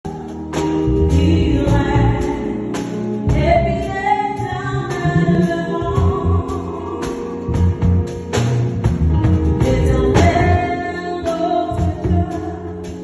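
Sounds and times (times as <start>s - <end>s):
band playing: 0.1s - 13.0s
drums and cymbal hits: 4.4s - 13.0s.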